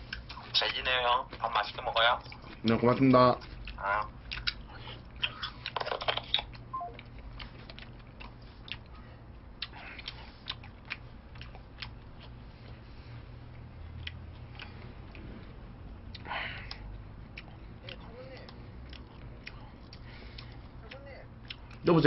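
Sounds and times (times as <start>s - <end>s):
low steady hum: 0.0s - 22.0s
man chewing food: 0.0s - 22.0s
mouth clicks and smacks: 3.5s - 9.0s.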